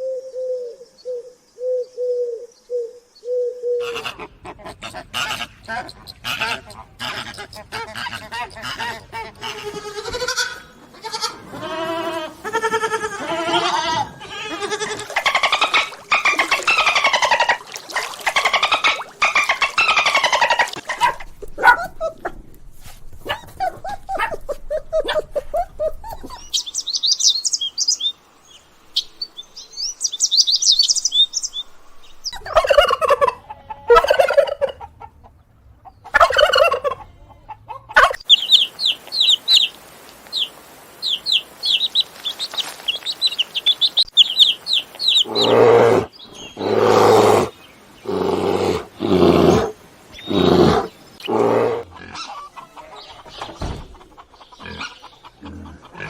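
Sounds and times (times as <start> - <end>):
poultry calling: 3.3 - 26.6, 32.3 - 35.2, 41.1 - 56.0.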